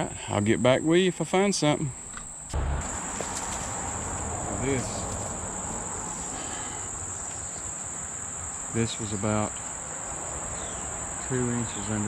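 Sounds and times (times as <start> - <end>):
insect chorus buzzing: 1.6 - 12.0
short pitched sound: 2.6 - 5.5.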